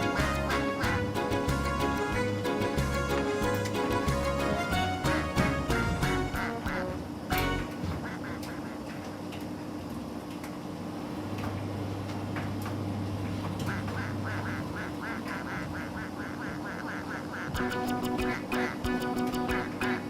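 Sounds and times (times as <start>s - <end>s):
rhythmic squeaking: 0.0s - 7.8s, 17.6s - 20.0s.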